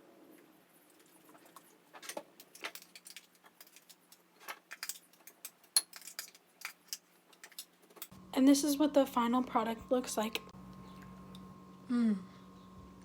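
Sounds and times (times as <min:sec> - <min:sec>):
kitchen things clicking and tapping: 0:01.0 - 0:08.1.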